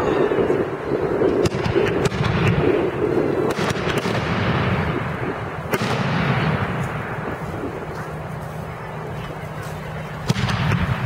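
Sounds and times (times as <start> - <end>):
firework crackling: 0.0 - 11.0
firework bangs: 0.4 - 8.3, 10.1 - 11.0.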